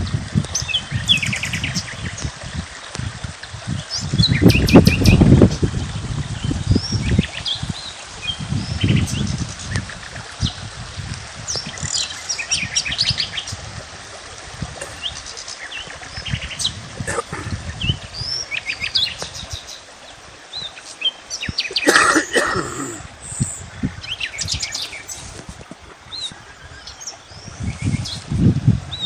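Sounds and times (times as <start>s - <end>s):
birds chirping and trilling: 3.7s - 10.6s, 11.5s - 13.6s, 14.8s - 25.4s, 26.1s - 29.0s.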